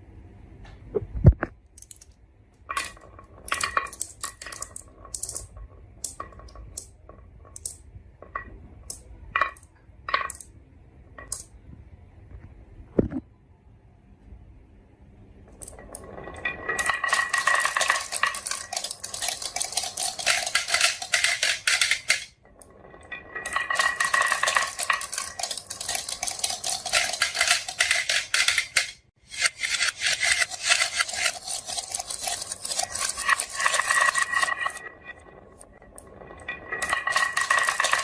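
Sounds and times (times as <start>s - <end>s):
marbles rattling down marble run: 2.8s - 7.0s, 15.5s - 38.0s.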